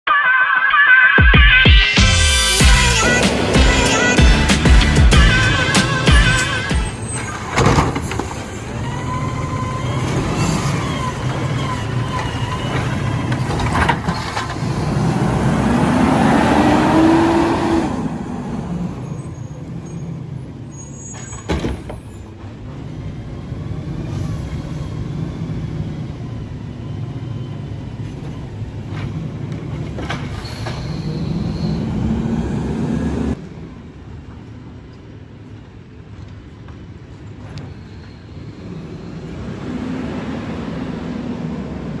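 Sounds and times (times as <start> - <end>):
garbage truck engine revving: 1.9 - 33.4.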